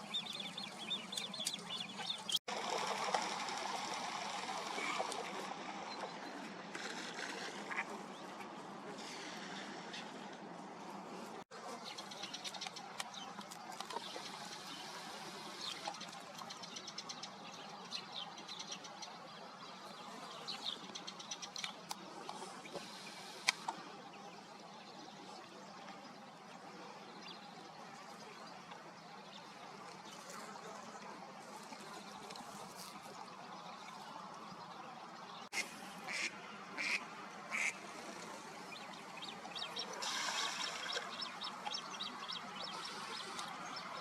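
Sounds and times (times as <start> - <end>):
birds chirping: 0.0 - 2.4, 31.7 - 44.0.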